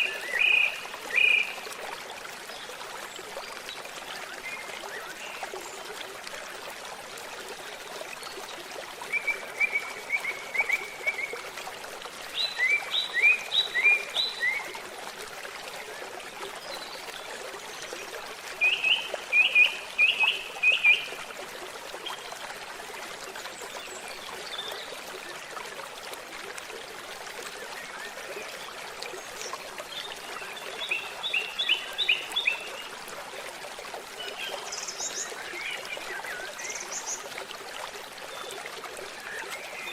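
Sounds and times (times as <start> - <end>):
stream trickling: 0.0 - 39.9
songbird singing: 12.3 - 14.7.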